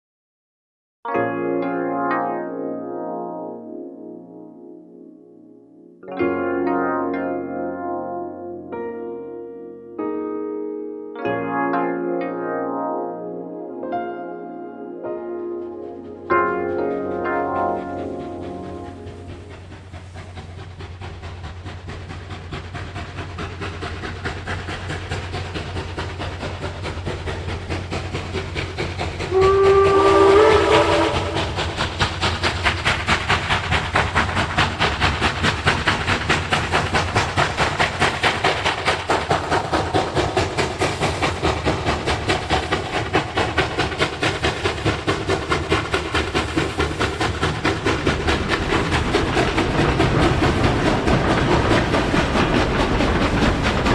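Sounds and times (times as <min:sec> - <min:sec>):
steam locomotive running: 0:06.0 - 0:09.2, 0:11.2 - 0:53.9
multi-tone train whistle: 0:29.2 - 0:32.1.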